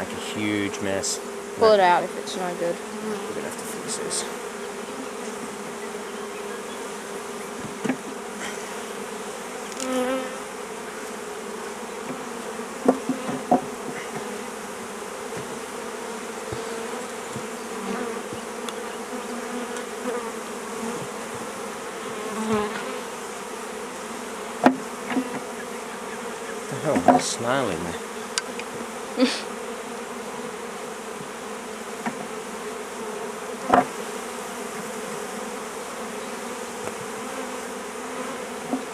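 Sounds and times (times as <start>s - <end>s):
bees buzzing: 0.0s - 38.9s
sharp knocks: 7.6s - 8.1s, 12.8s - 15.7s, 24.6s - 25.5s, 26.8s - 27.8s, 33.7s - 34.0s.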